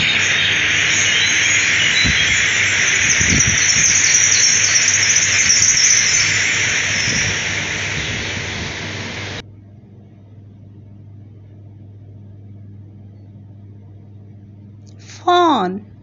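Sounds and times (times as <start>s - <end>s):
bird chirps: 0.0s - 9.4s
insects chorus: 0.0s - 9.4s.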